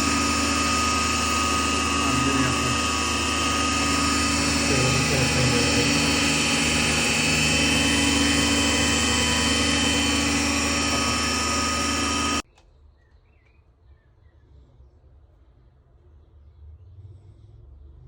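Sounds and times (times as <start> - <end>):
lathe running: 0.0 - 12.4.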